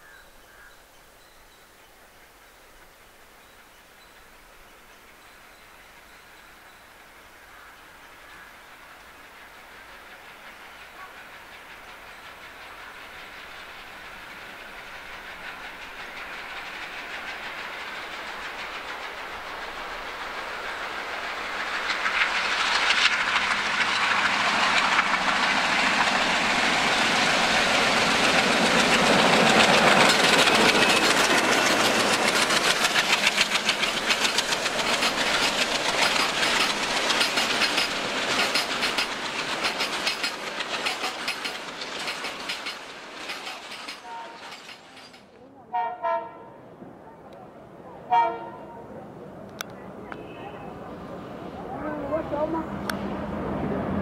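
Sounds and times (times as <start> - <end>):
diesel train passing: 1.2 - 54.0
wheels clacking over rail joints: 8.9 - 45.5.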